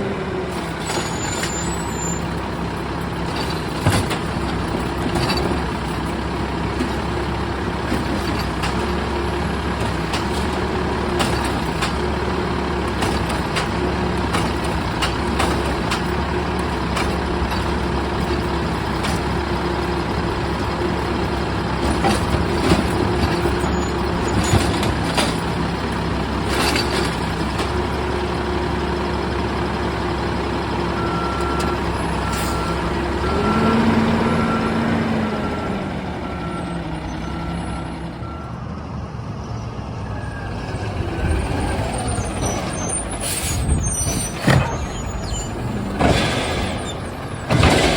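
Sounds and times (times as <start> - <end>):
diesel truck engine running: 0.0 - 47.9
knocks and clatter: 2.4 - 28.0, 43.8 - 47.9
reversing alarm beeping: 30.9 - 38.7.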